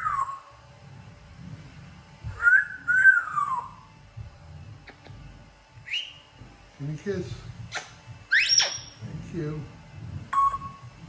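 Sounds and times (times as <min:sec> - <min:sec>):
parrot wolf whistle: 0:00.0 - 0:00.5, 0:02.3 - 0:03.8, 0:05.9 - 0:06.2, 0:07.7 - 0:09.0, 0:10.3 - 0:10.8.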